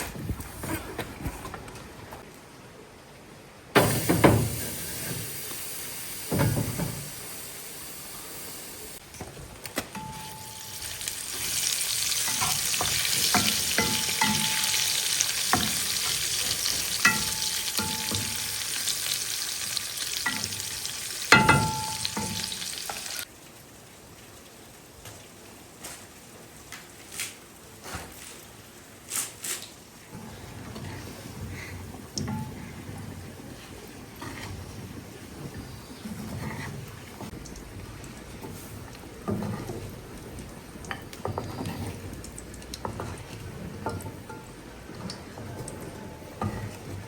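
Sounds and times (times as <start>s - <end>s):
food sizzling in a pan: 3.8s - 9.0s, 10.0s - 23.3s.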